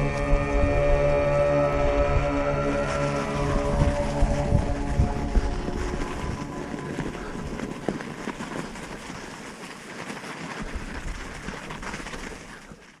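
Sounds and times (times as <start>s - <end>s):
bike tyres rolling on trail: 0.0s - 13.0s
bike clicks and rattles: 6.1s - 13.0s.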